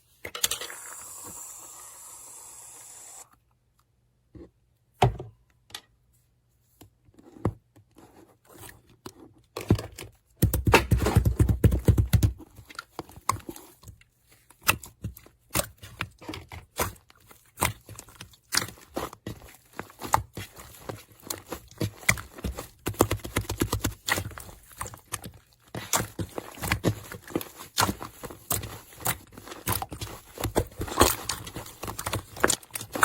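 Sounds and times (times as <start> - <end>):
slime squelching by hand: 12.6 - 33.0.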